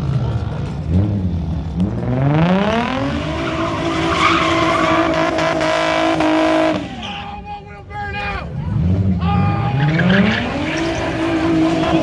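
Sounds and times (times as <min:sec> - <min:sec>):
car engine revving: 0:00.0 - 0:07.3, 0:08.4 - 0:12.0
tyres squealing: 0:02.8 - 0:12.0.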